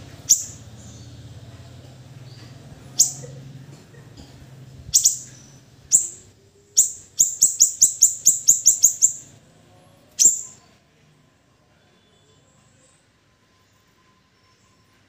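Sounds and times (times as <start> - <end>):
bird chirping high: 0.1 - 1.2, 2.4 - 3.4, 4.9 - 9.3, 10.2 - 10.7.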